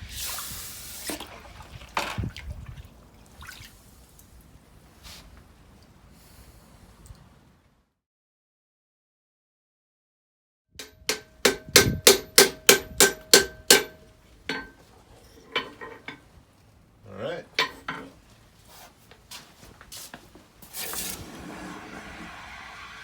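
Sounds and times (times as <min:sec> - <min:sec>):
hammer ringing on anvil: 0:10.8 - 0:14.7
light metal taps and clinks: 0:13.8 - 0:16.3, 0:17.6 - 0:18.2
short hiss: 0:20.7 - 0:23.0.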